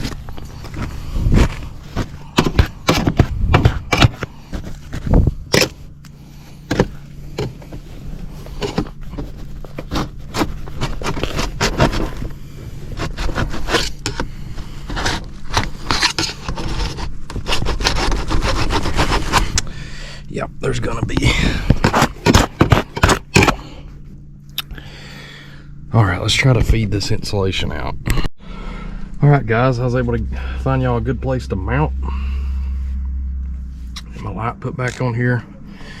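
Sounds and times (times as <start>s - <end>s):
steady low hum: 0.0s - 36.0s
tools scraping sheet metal: 14.9s - 19.7s.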